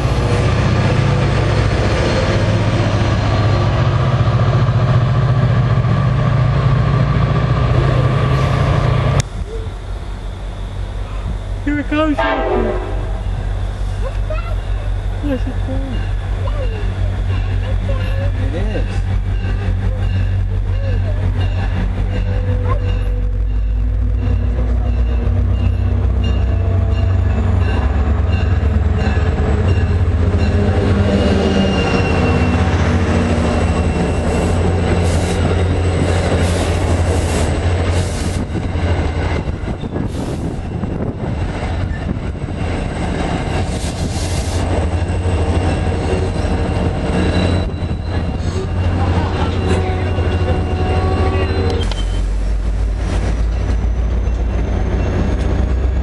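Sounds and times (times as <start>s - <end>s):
wheels clattering and squealing: 44.9s - 52.4s, 53.0s - 56.0s.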